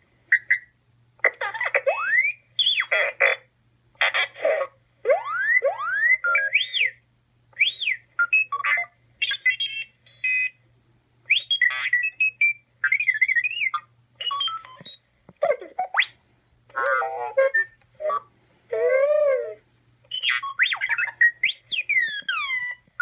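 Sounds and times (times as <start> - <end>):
robot toy beeps and whistles: 1.9 - 3.4, 5.1 - 10.7, 11.3 - 15.0, 15.8 - 22.8.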